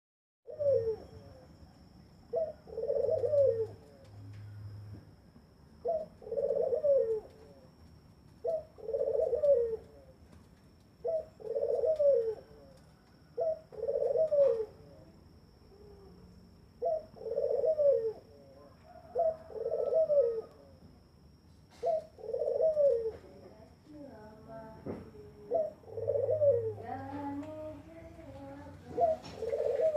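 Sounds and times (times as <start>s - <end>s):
dove cooing: 0.5s - 1.6s, 2.3s - 4.7s, 5.8s - 7.8s, 8.4s - 10.3s, 11.0s - 15.1s, 15.7s - 20.8s, 21.7s - 23.5s, 24.9s - 29.9s.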